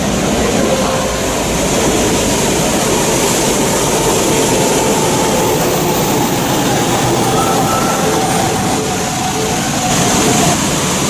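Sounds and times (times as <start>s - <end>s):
faint train whine: 0.0s - 11.0s
high-speed train rumbling: 0.0s - 11.0s.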